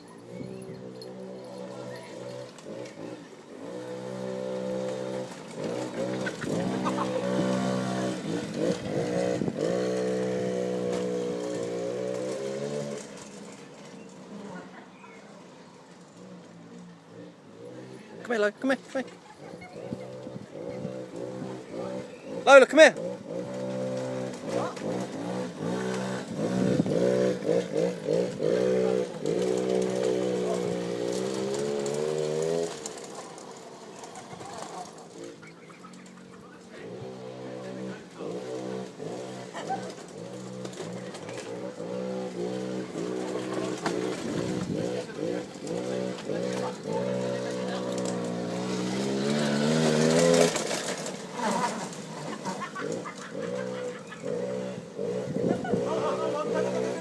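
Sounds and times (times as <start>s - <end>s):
quad bike engine revving: 0.0s - 57.0s
knocks and clatter: 38.4s - 55.8s.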